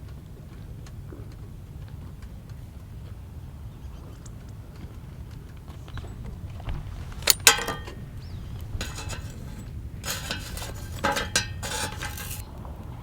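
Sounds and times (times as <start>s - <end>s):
utensils clattering and rustling: 7.0s - 12.4s
metal cookware clinking: 7.2s - 12.4s.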